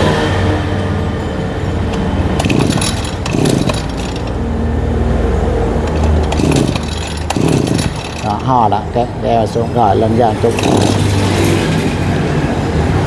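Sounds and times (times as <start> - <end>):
brush cutter engine running: 1.9 - 4.4, 5.8 - 8.9, 10.0 - 12.2
metallic clattering: 1.9 - 4.5, 5.8 - 8.9, 10.3 - 12.4.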